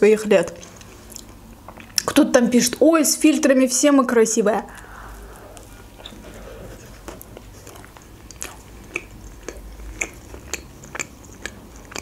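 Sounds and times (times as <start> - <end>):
chewing with wet mouth clicks: 0.5 - 2.2, 7.0 - 12.0.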